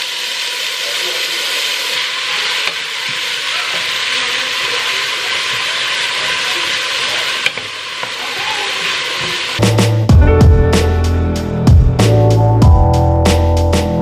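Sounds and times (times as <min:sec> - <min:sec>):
carrots sizzling in a pan: 0:00.0 - 0:09.6.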